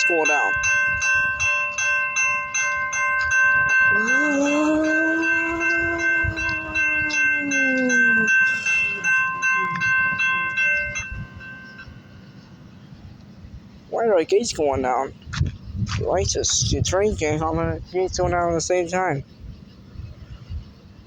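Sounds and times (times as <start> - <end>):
railroad crossing bell ringing: 0.0 - 15.0.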